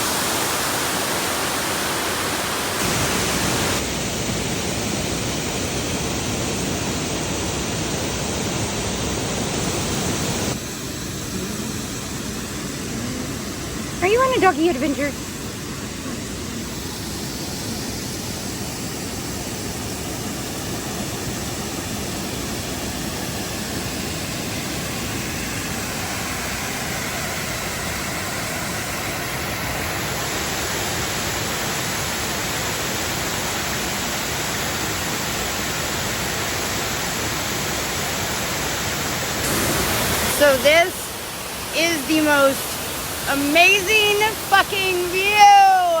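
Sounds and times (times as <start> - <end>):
waterfall rushing: 0.0 - 3.9, 35.5 - 46.0.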